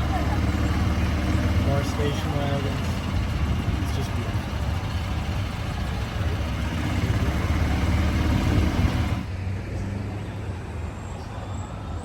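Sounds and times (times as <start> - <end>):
car engine running: 0.0 - 9.3
street background: 0.0 - 12.0.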